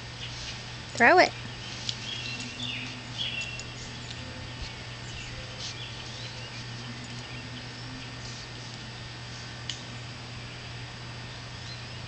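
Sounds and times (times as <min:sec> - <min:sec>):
dog chewing seed ball clicks: 0:01.8 - 0:04.2.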